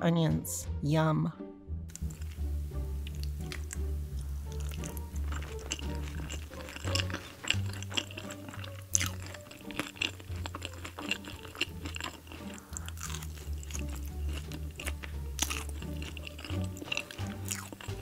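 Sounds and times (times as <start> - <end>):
background music with bass line: 0.0 - 18.0
close chewing: 1.9 - 2.4, 3.0 - 18.0
wet mouth clicks: 3.0 - 3.9, 4.5 - 15.2.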